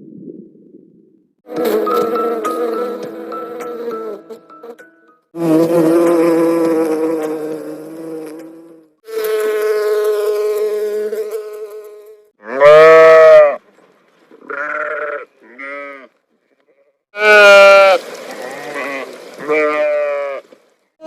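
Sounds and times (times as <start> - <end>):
farm animals bleating: 12.4 - 13.6, 14.4 - 16.2, 17.2 - 20.4.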